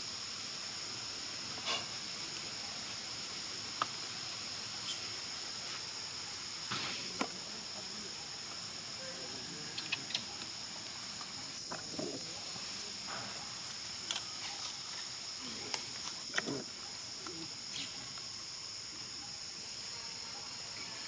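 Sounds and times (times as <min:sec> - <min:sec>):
insects droning: 0:00.0 - 0:21.0
sharp clicks and chirps: 0:09.7 - 0:10.6.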